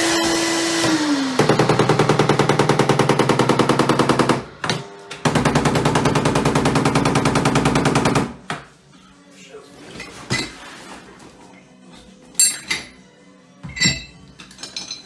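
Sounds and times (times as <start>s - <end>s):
electric hammer drill: 0.0s - 4.4s.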